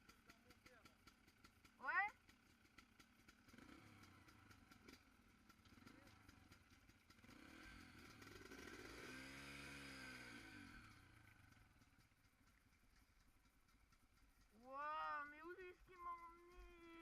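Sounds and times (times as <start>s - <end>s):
faint dirt bike engine: 0.0s - 17.0s.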